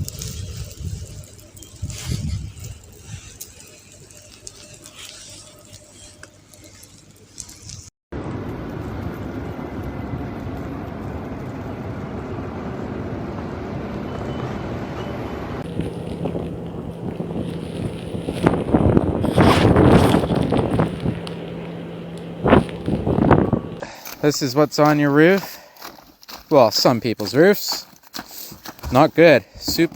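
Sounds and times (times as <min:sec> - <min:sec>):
vehicles moving through snow: 0:08.2 - 0:29.9
low steady hum: 0:15.6 - 0:25.9.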